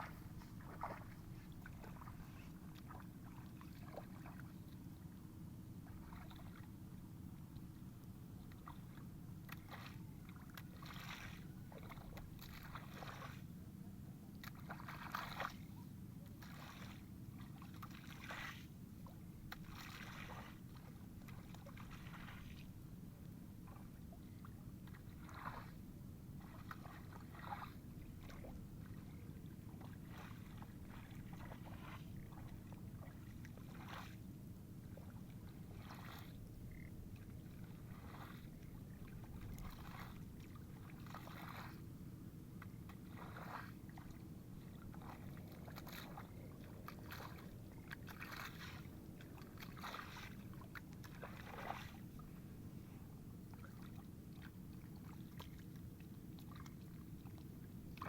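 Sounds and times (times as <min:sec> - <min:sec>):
splashing in water and mud: 0:00.0 - 0:04.6, 0:09.5 - 0:13.5, 0:14.4 - 0:15.8, 0:16.4 - 0:18.7, 0:19.5 - 0:22.7, 0:24.4 - 0:25.8, 0:26.4 - 0:29.0, 0:29.8 - 0:34.2, 0:37.8 - 0:41.8, 0:42.8 - 0:44.2, 0:44.8 - 0:52.3
steady low rumble: 0:00.0 - 0:09.4.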